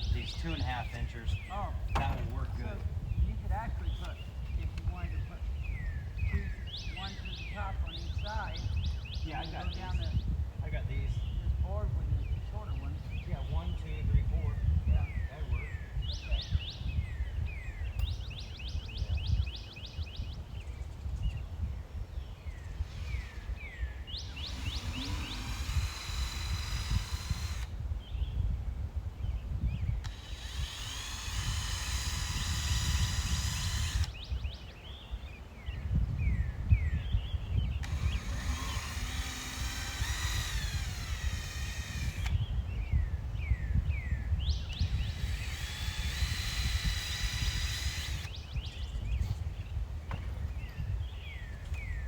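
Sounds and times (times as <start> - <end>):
bird chirps: 0.0 - 10.4, 12.2 - 28.5, 29.2 - 52.0
wind rumble on microphone: 0.0 - 52.0
power drill driving screws: 22.7 - 27.8, 30.0 - 34.2, 37.8 - 42.4, 44.7 - 48.4.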